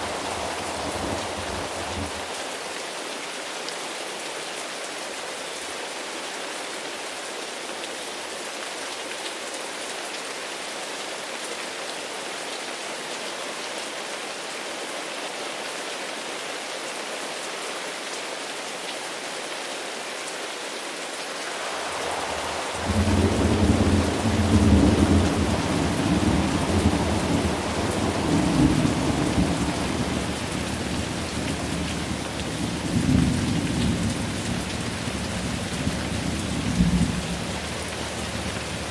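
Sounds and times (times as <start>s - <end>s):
thunder rumbling: 0.0s - 2.3s, 21.5s - 38.9s
steady rain falling: 0.0s - 38.9s.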